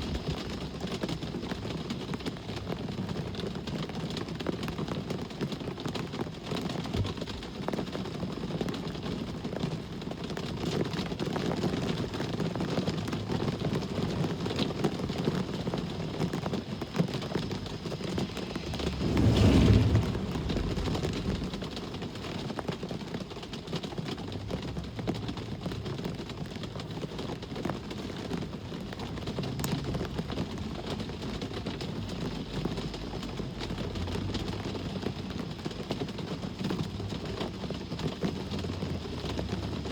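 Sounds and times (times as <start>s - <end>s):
background traffic: 0.0s - 39.9s
steady rain: 0.0s - 39.9s
vehicle passing close: 16.8s - 22.7s.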